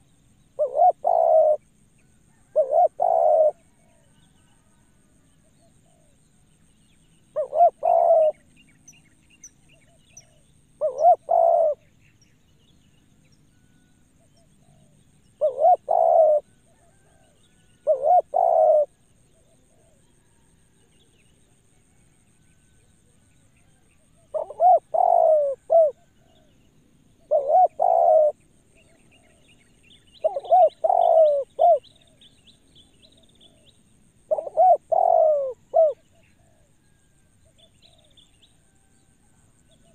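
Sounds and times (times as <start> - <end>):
dove cooing: 0.6 - 1.6, 2.3 - 4.0, 7.4 - 8.5, 9.8 - 11.8, 14.5 - 20.4, 24.1 - 26.6, 27.2 - 28.4, 30.2 - 32.2, 34.3 - 38.1
small birds chirping: 27.2 - 36.6.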